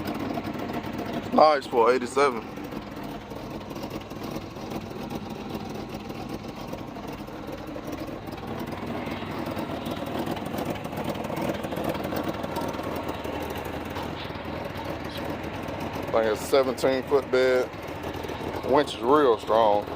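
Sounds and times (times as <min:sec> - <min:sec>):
truck engine idling: 0:00.0 - 0:19.9.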